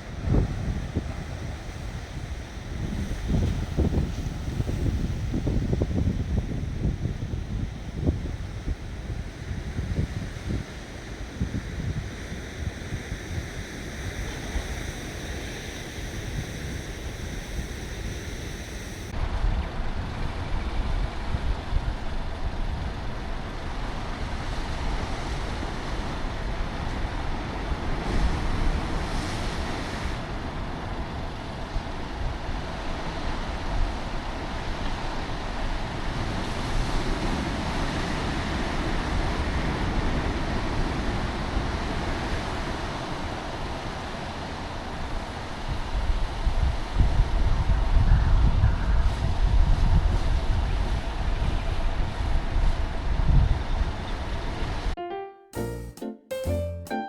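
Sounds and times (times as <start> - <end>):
wind buffeting microphone: 0.0 - 16.9, 45.6 - 54.8
waves washing: 23.7 - 31.2
high-pitched tones: 55.0 - 57.0.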